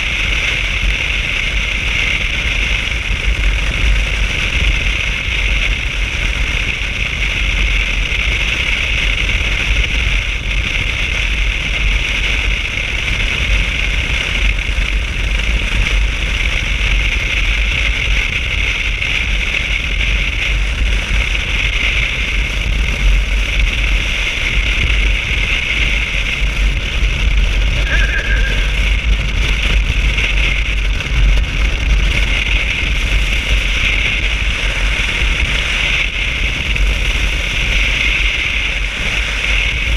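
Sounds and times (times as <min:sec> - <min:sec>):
road noise: 0:00.0 - 0:39.9
wind noise: 0:00.0 - 0:39.9
motorcycle engine: 0:22.1 - 0:39.9.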